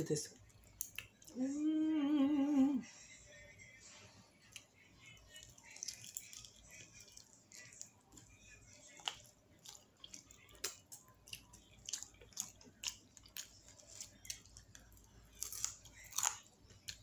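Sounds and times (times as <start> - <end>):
wet chewing mouth sounds: 4.4 - 17.0.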